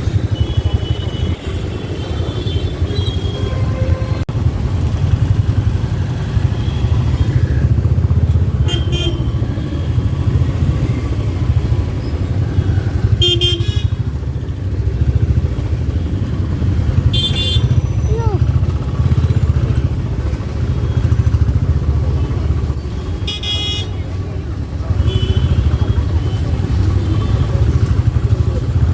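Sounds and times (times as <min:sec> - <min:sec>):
motorcycle engine and road rumble: 0:00.0 - 0:28.9
vehicle horn toots: 0:08.6 - 0:09.4, 0:13.1 - 0:14.0, 0:17.1 - 0:17.8.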